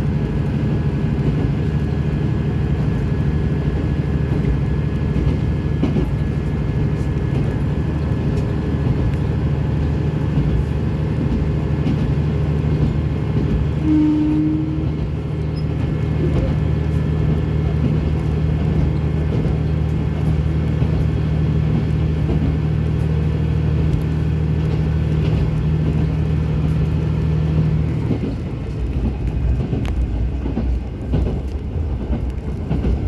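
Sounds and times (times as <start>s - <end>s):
railcar engine drone: 0.0s - 33.0s
wheel and track rumble: 0.0s - 33.0s
brief steady tone: 13.8s - 14.8s.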